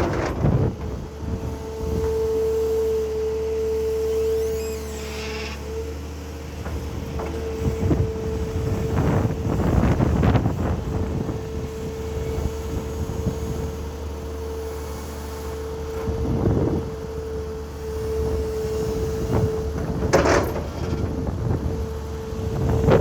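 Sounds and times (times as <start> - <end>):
knocks and scrapes: 0.0 - 1.0, 19.8 - 21.2
excavator engine hum: 0.0 - 23.0.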